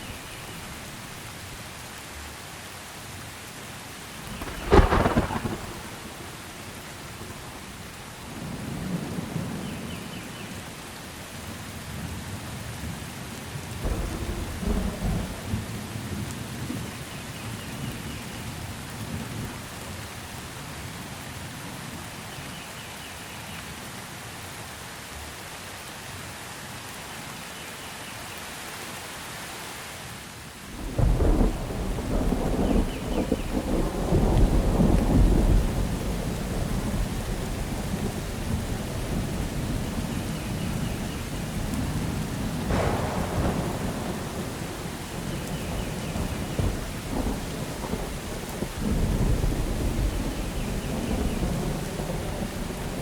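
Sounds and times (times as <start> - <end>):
steady rain: 0.0 - 53.0
rolling thunder: 4.2 - 7.4, 13.8 - 16.3, 30.8 - 53.0.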